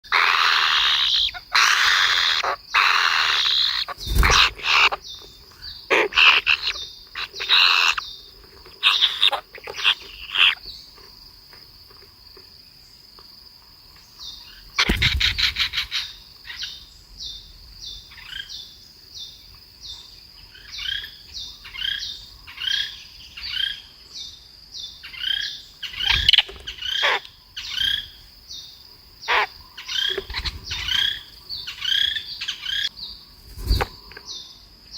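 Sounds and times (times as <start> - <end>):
small birds chirping: 0.0 - 34.9
loud thump: 14.8 - 15.8
quick rattle: 14.8 - 16.0.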